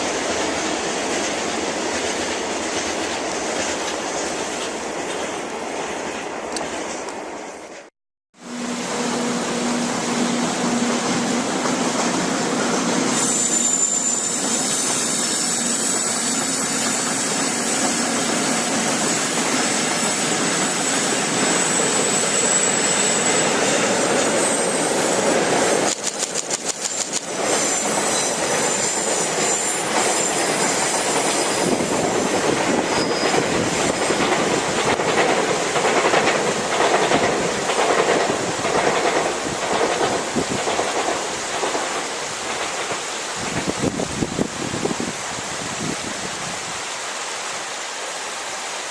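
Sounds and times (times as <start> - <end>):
freight train rumbling past: 0.0 - 46.5
wheel squeal: 13.0 - 25.2, 26.7 - 32.0, 32.7 - 34.2
wheels clacking over rail joints: 25.2 - 43.8.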